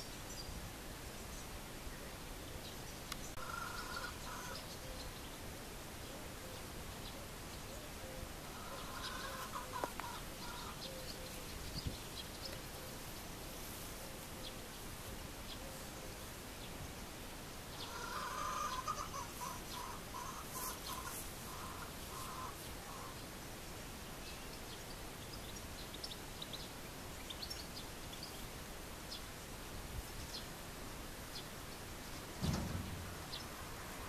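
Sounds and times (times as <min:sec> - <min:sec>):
birds calling: 0:02.1 - 0:16.8, 0:17.6 - 0:23.4, 0:31.2 - 0:34.0
short knocks: 0:32.4 - 0:33.4.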